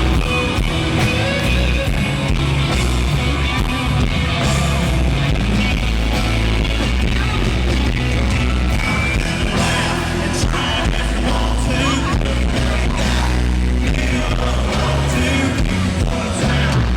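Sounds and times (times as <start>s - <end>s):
country-rock band playing: 0.0s - 16.9s
person singing: 8.8s - 16.9s.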